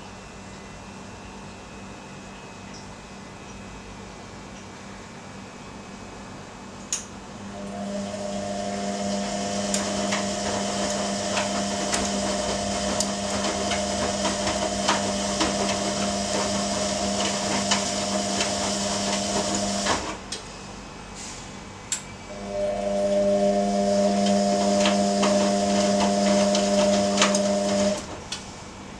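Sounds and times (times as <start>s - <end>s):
washing machine motor hum: 7.2s - 20.4s, 22.2s - 28.9s.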